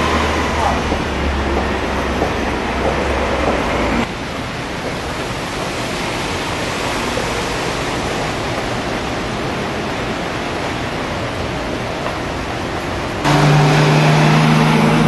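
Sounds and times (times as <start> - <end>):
rain on wet pavement: 4.0 - 15.0.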